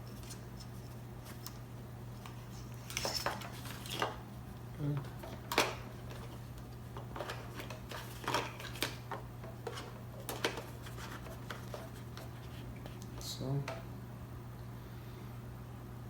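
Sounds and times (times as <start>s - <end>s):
plastic parts clicks and rustles: 5.0s - 13.0s.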